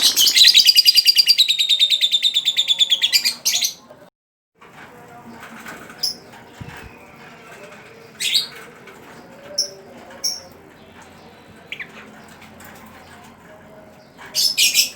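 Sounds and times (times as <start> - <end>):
bird chirping: 0.0 - 3.9.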